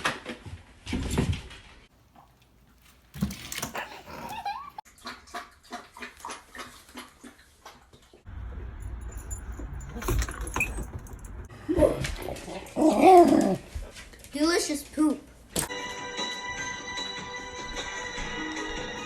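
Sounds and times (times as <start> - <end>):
collar tags jangling: 8.5 - 11.5.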